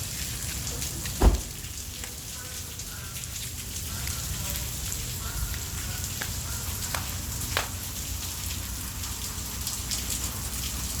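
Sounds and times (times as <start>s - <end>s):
heavy rain falling: 0.0s - 11.0s
raindrop taps: 1.0s - 2.3s, 5.5s - 8.0s.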